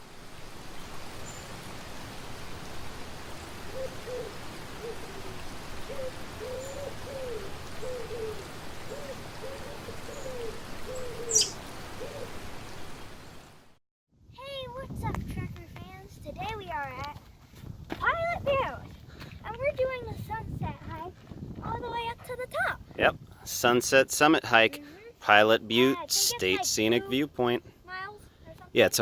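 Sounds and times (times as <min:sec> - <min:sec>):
steady outdoor hiss: 0:00.0 - 0:17.1, 0:22.6 - 0:29.0
bird hooting calls: 0:03.7 - 0:12.4.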